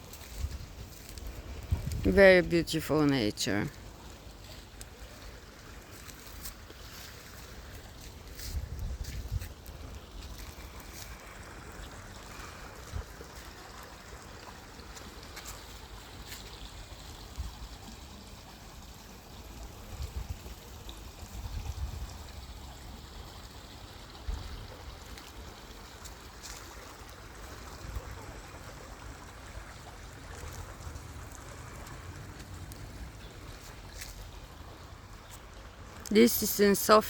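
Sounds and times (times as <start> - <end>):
river water running: 0.0 - 37.0
low rumble on microphone: 0.3 - 2.1.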